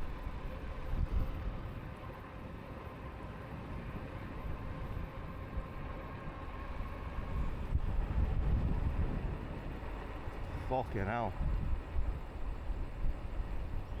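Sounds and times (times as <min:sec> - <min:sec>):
wind buffeting microphone: 0:00.0 - 0:14.0
tyres rumbling on path: 0:03.6 - 0:14.0.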